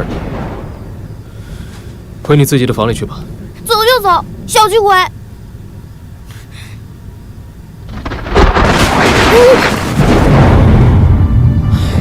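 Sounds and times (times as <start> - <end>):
loud thunderclap: 0.0 - 0.9, 7.9 - 12.0
thunder rumbling: 0.0 - 4.7, 7.8 - 12.0.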